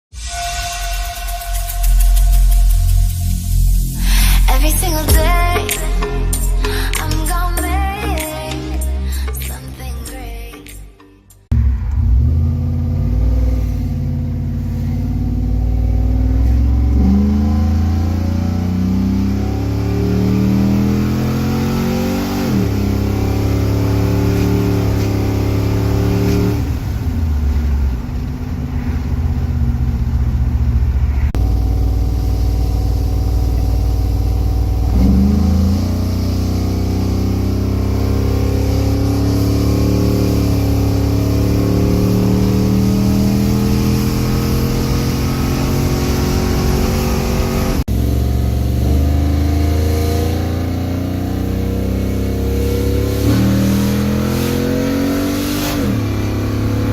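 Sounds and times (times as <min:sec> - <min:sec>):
engine revving at full throttle: 0:11.5 - 0:30.6, 0:31.3 - 0:56.9.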